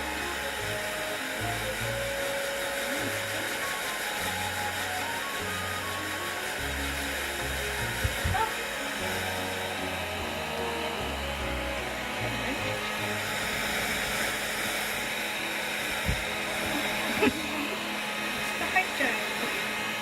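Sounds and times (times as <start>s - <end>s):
background music: 0.0s - 20.0s
steady rushing noise: 0.0s - 20.0s.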